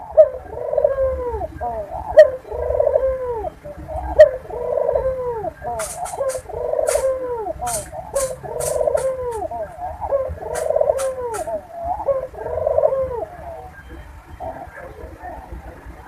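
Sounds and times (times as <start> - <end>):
doves cooing: 0.0 - 16.0
sharp ticks: 5.7 - 9.5, 10.5 - 11.5.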